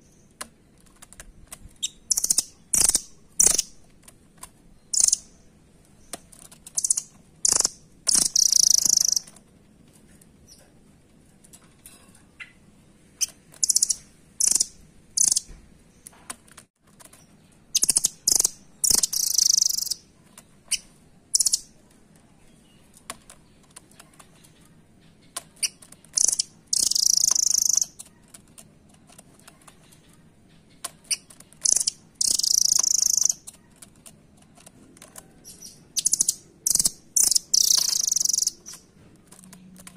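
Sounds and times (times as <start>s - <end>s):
nuthatch high chips: 6.8s - 9.3s.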